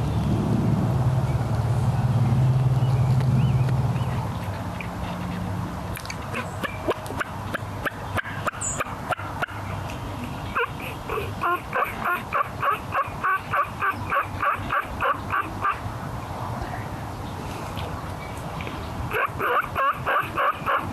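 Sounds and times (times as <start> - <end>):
turkey yelping: 10.6 - 15.8, 19.1 - 20.9.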